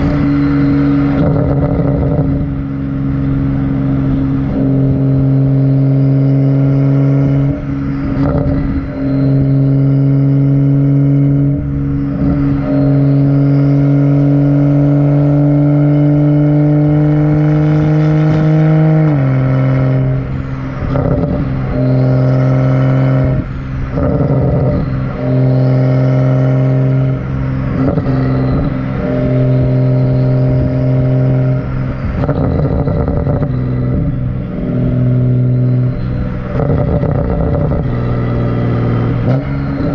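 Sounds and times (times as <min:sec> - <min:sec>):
loud car exhaust drone: 0:00.0 - 0:39.9.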